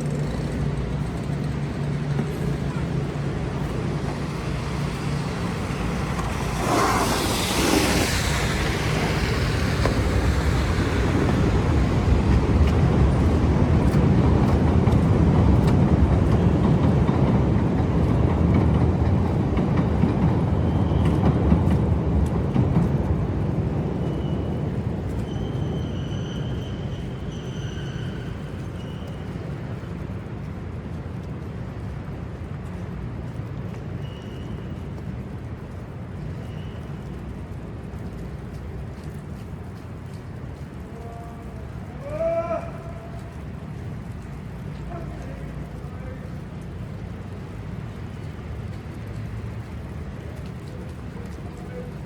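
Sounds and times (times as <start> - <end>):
large vehicle rumbling past: 0.0 - 18.2
faint high squeal: 25.2 - 29.4, 34.0 - 34.7.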